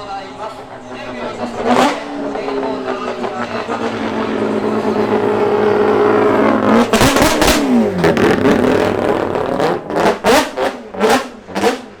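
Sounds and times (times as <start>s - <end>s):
rotary engine revving: 0.0s - 12.0s
exhaust pops and cracks: 0.4s - 12.0s.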